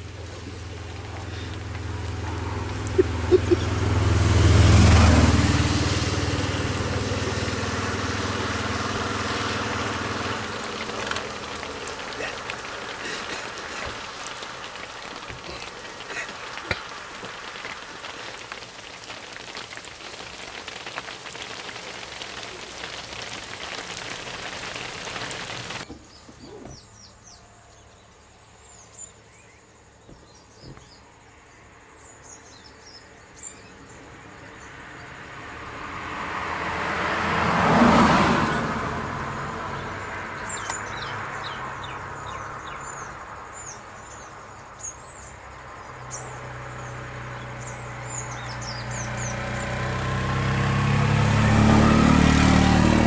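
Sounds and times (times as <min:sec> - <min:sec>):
birds chirping: 0:00.0 - 0:04.0, 0:06.2 - 0:31.1, 0:39.8 - 0:50.1
rain hissing: 0:00.0 - 0:25.9, 0:36.0 - 0:53.0
motor vehicle passing: 0:00.0 - 0:27.1, 0:33.8 - 0:53.0.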